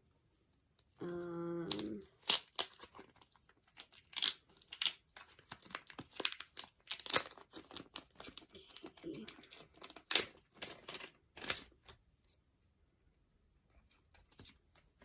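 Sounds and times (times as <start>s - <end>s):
packaging crinkling and rustling: 1.7s - 12.0s.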